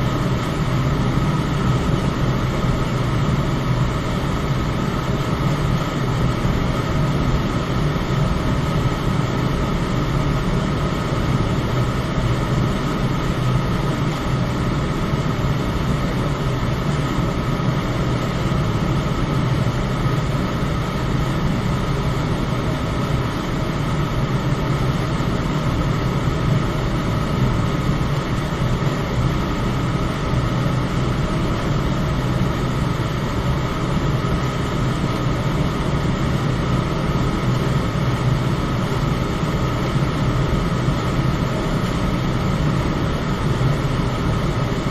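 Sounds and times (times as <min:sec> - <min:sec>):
electric fan humming: 0:00.0 - 0:44.9
fan motor whine: 0:00.0 - 0:44.9.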